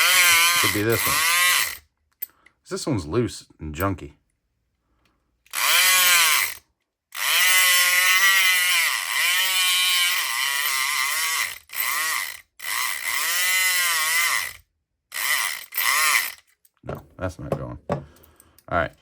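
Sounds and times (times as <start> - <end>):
electric pick gun buzzing: 0.0 - 1.8, 5.5 - 6.6, 7.2 - 16.4.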